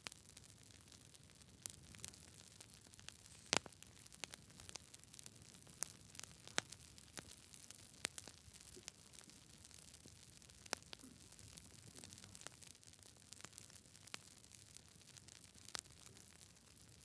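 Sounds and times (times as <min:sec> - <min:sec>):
faint fire hiss: 0:00.0 - 0:12.7
campfire crackling and popping: 0:00.0 - 0:17.0.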